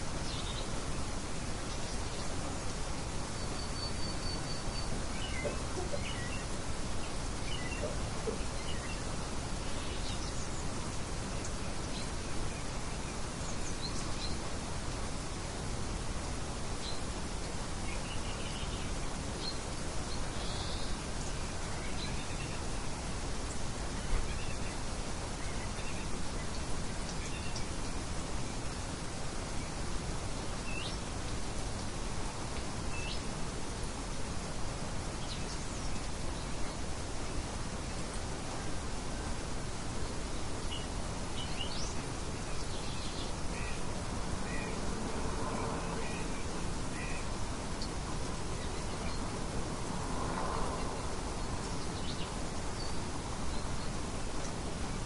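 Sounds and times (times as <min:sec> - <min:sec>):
light wind noise: 0:00.0 - 0:55.0
faint bird chirps: 0:03.2 - 0:10.8, 0:17.8 - 0:28.0.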